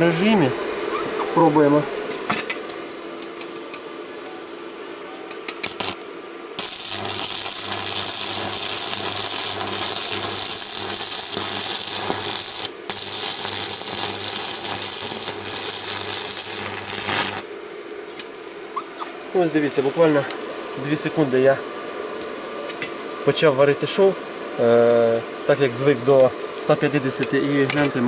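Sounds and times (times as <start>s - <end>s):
welding arc crackling and hissing: 5.5s - 21.6s.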